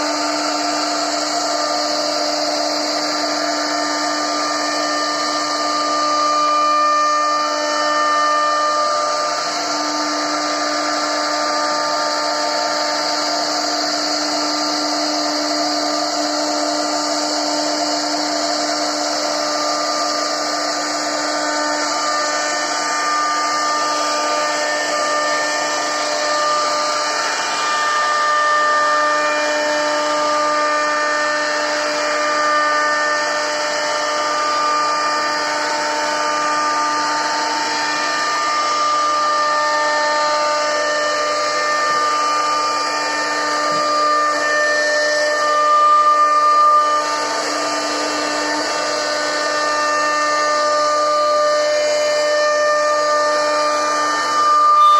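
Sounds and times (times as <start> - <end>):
router spindle whining: 0.0 - 54.9.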